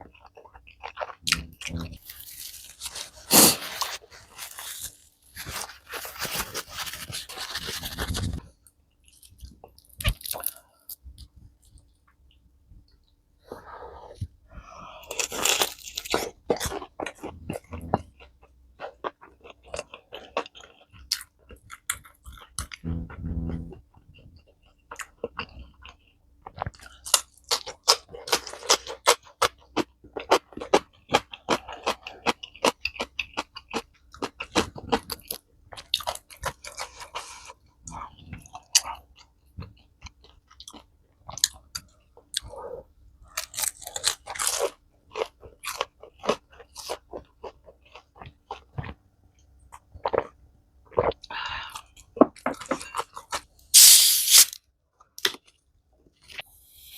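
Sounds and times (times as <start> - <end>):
person crunching and chewing: 0.0 - 8.4, 9.1 - 10.6, 15.0 - 23.7, 24.9 - 42.6, 43.2 - 49.0, 51.8 - 54.6
brief low hum: 22.8 - 23.8.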